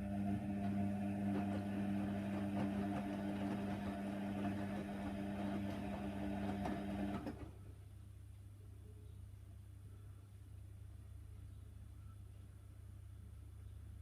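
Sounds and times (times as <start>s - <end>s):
washing machine motor churning: 0.0s - 7.4s
faint low hum: 6.6s - 14.0s.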